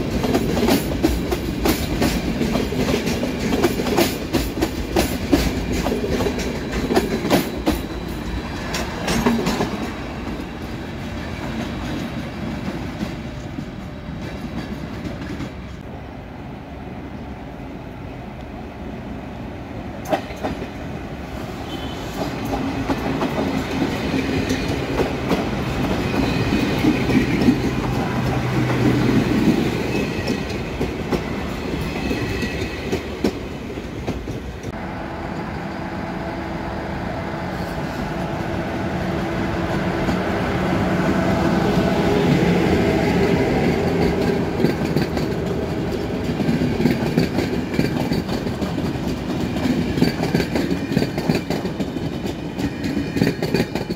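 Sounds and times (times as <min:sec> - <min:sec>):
train wheels clicking over rails: 0:00.0 - 0:15.9, 0:20.0 - 0:35.7, 0:37.5 - 0:53.9
train rumble and hum: 0:00.0 - 0:53.9.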